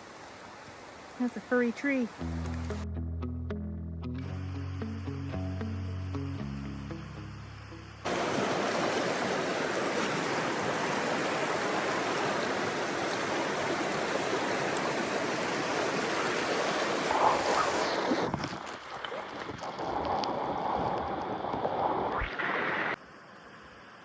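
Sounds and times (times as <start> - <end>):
stream water flowing: 0.0 - 2.8, 4.2 - 24.0
background music: 2.2 - 8.1.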